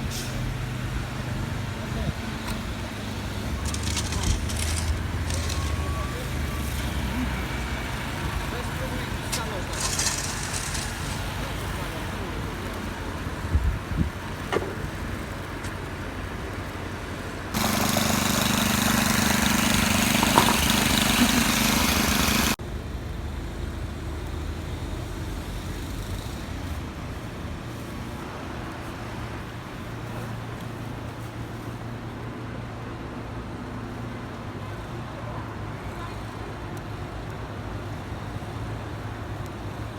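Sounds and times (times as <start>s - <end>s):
traffic engine hum: 0.0s - 32.0s.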